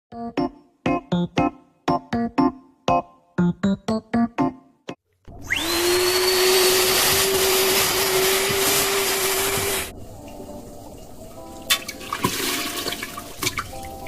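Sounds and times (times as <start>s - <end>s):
electric motor appliance whining: 5.3s - 9.9s.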